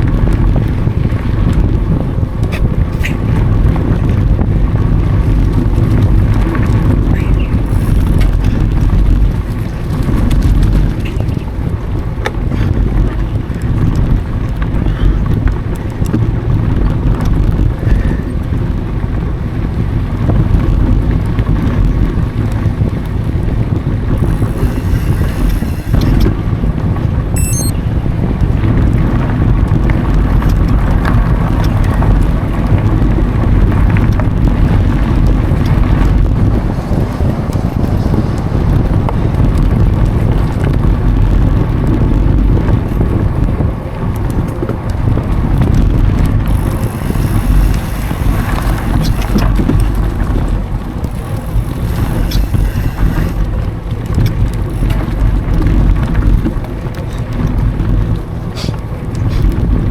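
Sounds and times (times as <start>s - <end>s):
bike rattles and clicks: 0.0s - 59.9s
mountain bike rolling on dirt: 0.0s - 59.9s
wind buffeting microphone: 0.0s - 59.9s
quick high chirps: 27.4s - 27.8s
short hiss: 58.6s - 59.5s.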